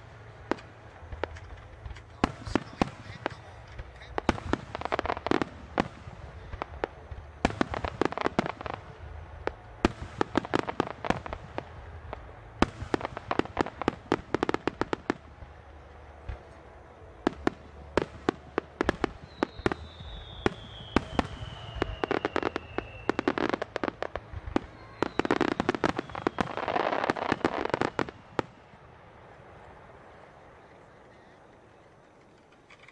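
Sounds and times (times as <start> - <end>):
fireworks bangs: 0.0 - 32.8
fireworks crackling: 0.0 - 32.9
long falling whistle: 19.2 - 23.5.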